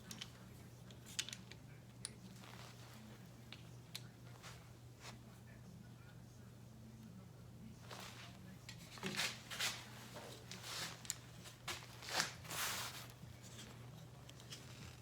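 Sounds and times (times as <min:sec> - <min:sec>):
rustling and scraping of small parts: 0:00.0 - 0:05.3, 0:07.8 - 0:15.0.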